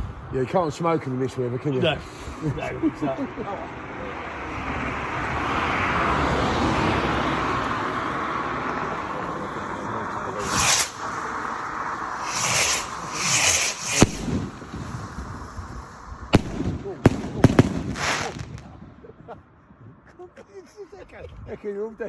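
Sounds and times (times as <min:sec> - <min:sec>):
firework rocket hiss: 0:10.3 - 0:18.6
short hissing bursts: 0:10.4 - 0:16.1
firework bang: 0:10.4 - 0:18.8.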